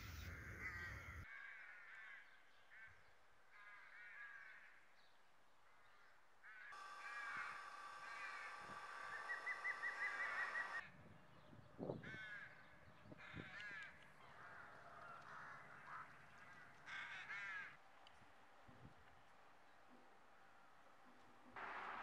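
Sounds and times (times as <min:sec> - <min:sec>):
birds twittering: 0:00.0 - 0:01.3, 0:06.7 - 0:17.7.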